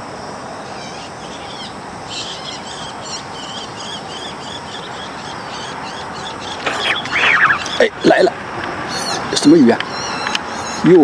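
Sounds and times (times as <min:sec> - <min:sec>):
rushing background noise: 0:00.0 - 0:11.0
bird chirping: 0:00.6 - 0:11.0.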